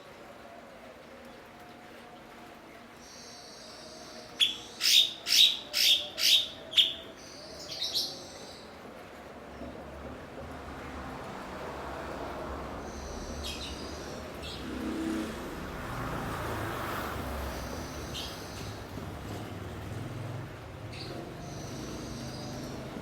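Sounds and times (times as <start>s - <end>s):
bird chirping calls: 3.1s - 8.7s
low traffic rumble: 4.2s - 23.0s.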